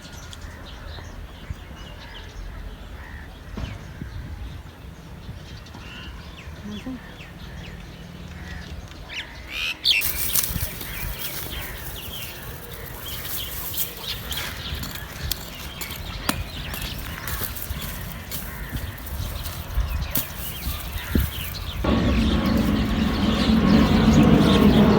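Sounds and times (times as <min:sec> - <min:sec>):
chickens clucking: 0:10.0 - 0:24.9
rustling: 0:10.0 - 0:24.9
sharp knocks and scrapes: 0:10.0 - 0:24.9.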